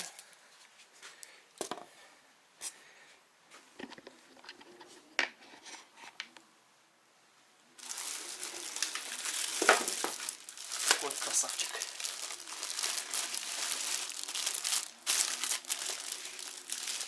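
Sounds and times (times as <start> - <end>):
wrapping crinkling and rustling: 0.0 - 0.5, 7.8 - 17.0.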